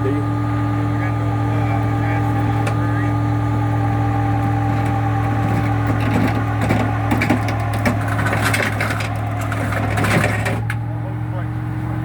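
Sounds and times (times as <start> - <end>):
truck engine humming: 0.0 - 12.0
crackling and scraping: 4.4 - 10.8.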